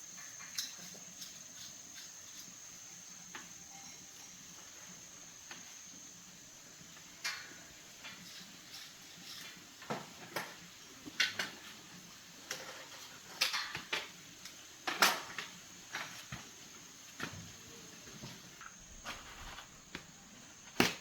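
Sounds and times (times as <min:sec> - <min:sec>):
faint high hiss: 0:00.0 - 0:21.0.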